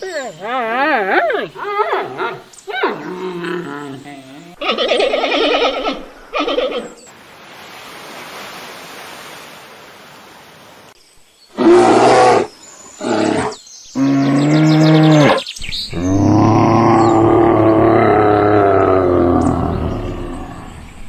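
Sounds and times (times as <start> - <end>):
large animal calling: 0.9 - 7.1
faint hiss: 7.0 - 13.9.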